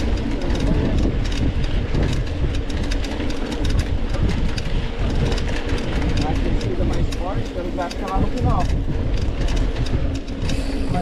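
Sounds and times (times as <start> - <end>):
bike and camera mount rattling: 0.0 - 11.0
bike tyres rumbling on dirt: 0.0 - 11.0.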